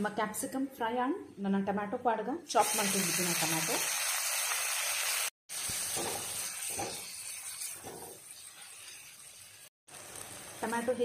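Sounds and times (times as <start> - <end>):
vegetables sizzling in hot oil: 2.5 - 11.0
spatula stirring in a pan: 5.6 - 10.1.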